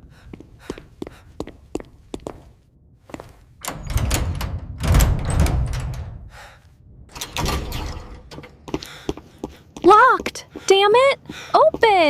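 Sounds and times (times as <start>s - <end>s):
door shaken and banged: 3.6s - 6.4s, 7.1s - 8.4s.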